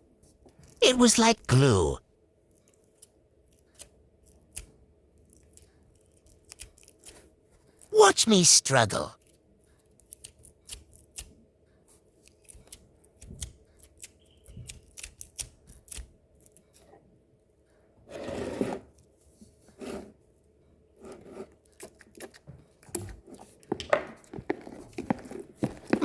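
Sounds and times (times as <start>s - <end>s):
slime rubbing: 24.4s - 26.0s.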